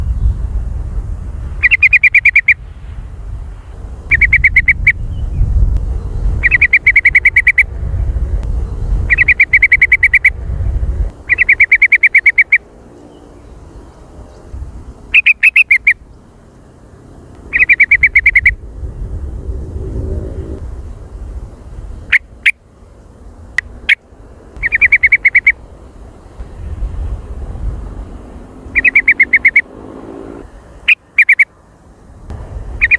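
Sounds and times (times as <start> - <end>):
bird chattering bursts: 1.6 - 2.6, 4.1 - 5.0, 6.4 - 7.7, 9.1 - 10.4, 11.2 - 12.7, 15.1 - 16.0, 17.5 - 18.6, 24.6 - 25.6, 28.7 - 29.7, 30.9 - 31.5
low rumble: 2.6 - 6.7, 7.6 - 9.3, 10.3 - 11.2, 18.5 - 22.1.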